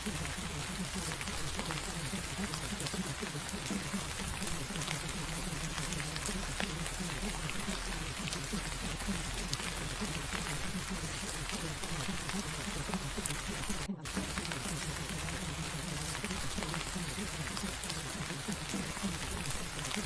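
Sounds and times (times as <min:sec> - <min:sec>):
muffled wavering voice murmur: 0:00.0 - 0:20.0
rain hiss with drop clicks: 0:00.0 - 0:20.0.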